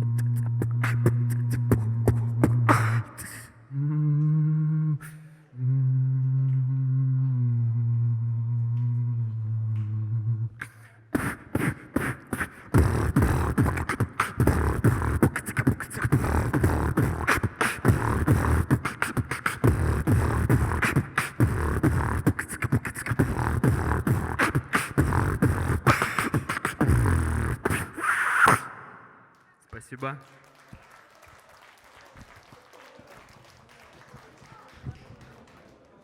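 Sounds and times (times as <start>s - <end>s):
held low vocal hum: 0.0s - 28.6s
beatboxing: 0.0s - 29.2s.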